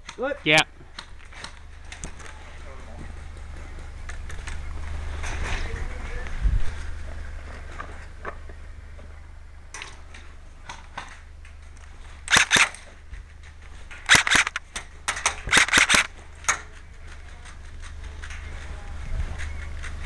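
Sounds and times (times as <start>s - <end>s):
airsoft guns firing bursts: 12.3s - 12.9s, 14.1s - 16.2s.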